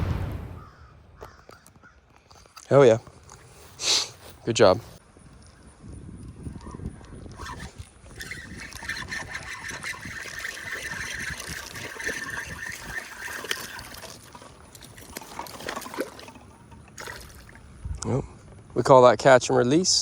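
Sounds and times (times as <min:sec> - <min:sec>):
water splashing and trickling: 0:07.3 - 0:18.0.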